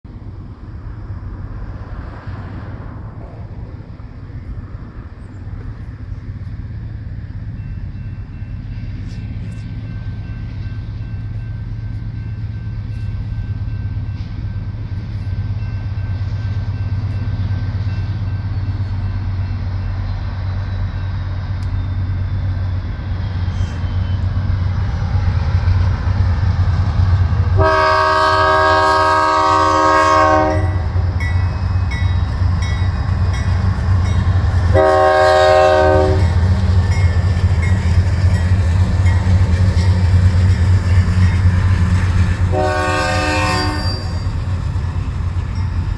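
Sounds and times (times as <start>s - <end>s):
diesel locomotive engine rumble: 0.0s - 45.9s
locomotive horn blast: 27.5s - 31.2s, 34.6s - 36.4s, 42.5s - 44.3s.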